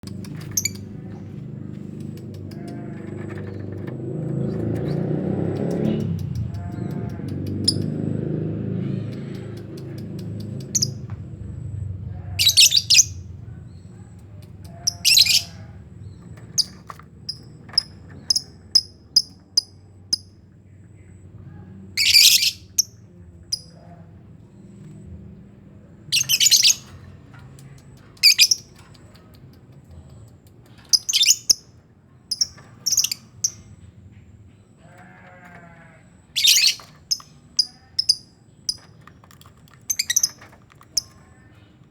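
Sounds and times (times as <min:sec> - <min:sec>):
low rumble: 0:00.0 - 0:18.7
shrill screeching bird calls: 0:12.3 - 0:13.2, 0:14.8 - 0:15.8, 0:22.0 - 0:22.8, 0:26.2 - 0:26.9, 0:34.9 - 0:38.3.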